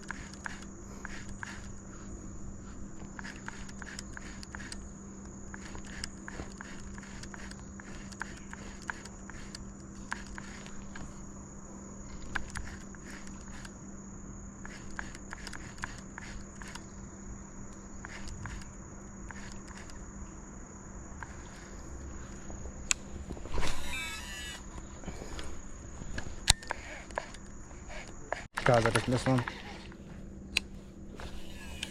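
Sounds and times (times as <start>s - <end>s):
insect drone: 0.0s - 31.9s
footsteps crunching: 27.7s - 31.9s.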